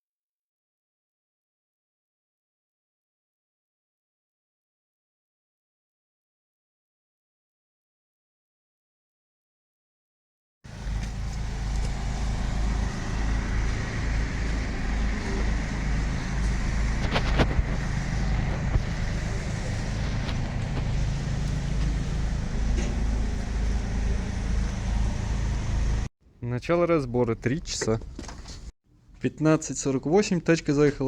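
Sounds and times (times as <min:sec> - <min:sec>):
car engine rumbling: 0:10.7 - 0:26.1.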